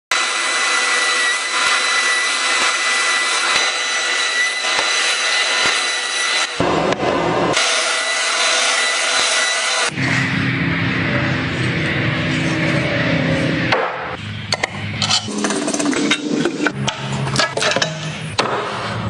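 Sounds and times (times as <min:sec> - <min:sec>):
power tool rasping whir on wood: 0:00.1 - 0:06.6, 0:07.5 - 0:10.0.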